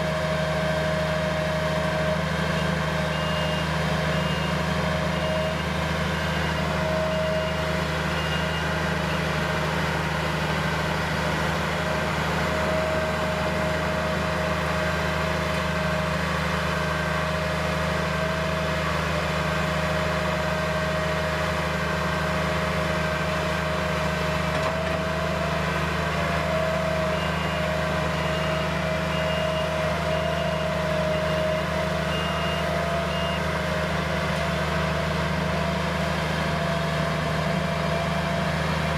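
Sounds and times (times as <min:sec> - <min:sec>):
diesel engine running: 0:00.0 - 0:38.9
reversing alarm beeping: 0:02.5 - 0:09.4, 0:27.0 - 0:34.6.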